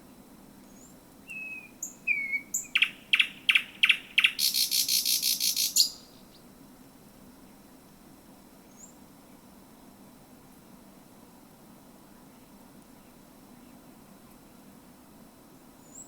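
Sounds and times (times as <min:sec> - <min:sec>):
bird singing: 0:00.7 - 0:06.4.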